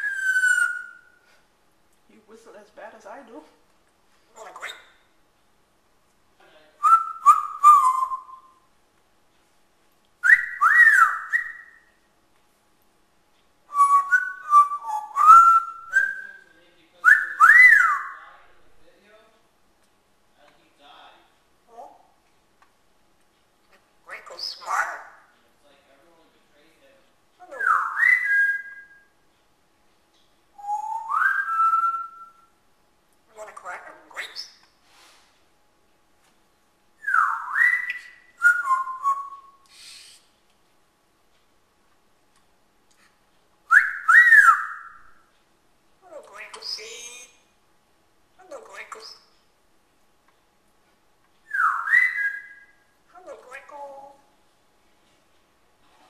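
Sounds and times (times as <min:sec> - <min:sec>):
parrot whistling: 0:00.0 - 0:01.2, 0:06.8 - 0:08.7, 0:10.2 - 0:12.0, 0:13.7 - 0:18.2, 0:27.4 - 0:29.1, 0:30.6 - 0:32.5, 0:37.0 - 0:40.3, 0:43.7 - 0:45.2, 0:51.4 - 0:54.1.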